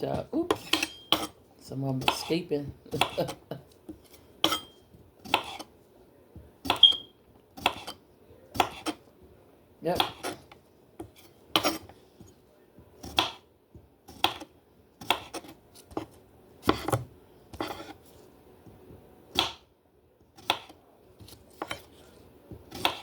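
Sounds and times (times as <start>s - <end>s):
knife chopping cucumbers: 0.0s - 5.7s, 6.4s - 7.0s, 7.6s - 9.1s, 9.9s - 18.0s, 20.4s - 23.0s.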